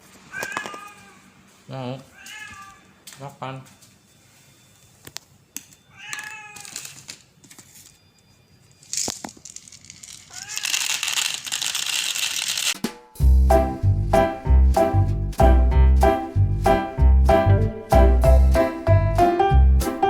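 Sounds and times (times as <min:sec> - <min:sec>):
rustling and crinkling: 0:00.0 - 0:12.8
cat meowing: 0:00.3 - 0:01.2, 0:02.1 - 0:03.0, 0:05.9 - 0:06.9, 0:10.3 - 0:10.8.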